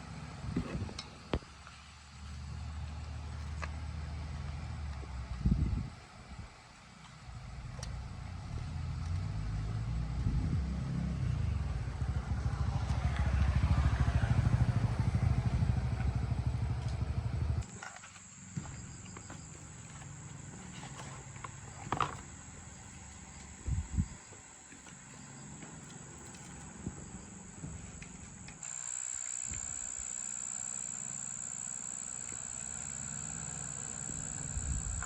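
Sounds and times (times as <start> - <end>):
motorbike engine rumbling: 0.0 - 28.6, 32.6 - 35.0.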